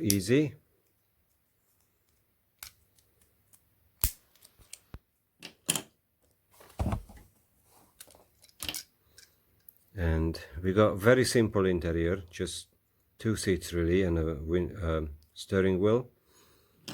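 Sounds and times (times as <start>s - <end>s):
clicks of small parts handled: 0.8s - 6.4s, 8.0s - 9.9s
scraping handling noise: 6.6s - 8.8s.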